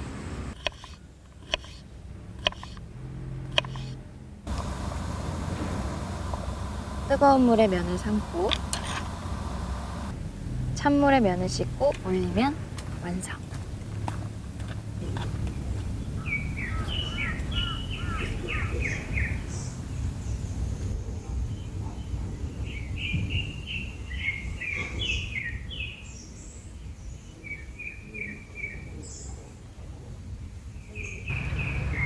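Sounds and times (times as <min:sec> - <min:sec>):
low background rumble: 0:00.0 - 0:24.5
bird chirping: 0:14.9 - 0:29.5, 0:30.8 - 0:32.0.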